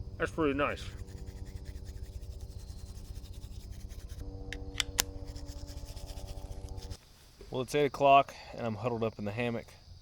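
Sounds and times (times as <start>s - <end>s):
steady low hum: 0.0s - 7.6s
toothbrush scrubbing teeth: 5.2s - 7.0s.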